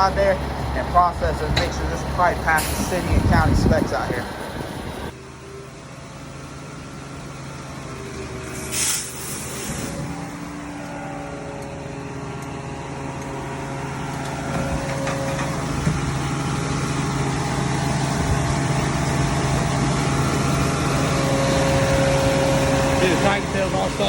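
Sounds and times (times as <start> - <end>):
truck engine running: 0.0 - 24.0.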